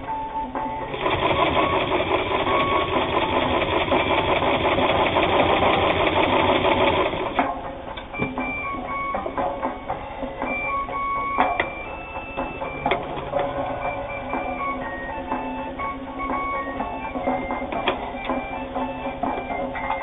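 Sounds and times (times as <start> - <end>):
sewing machine stitching denim: 0.9 - 7.5.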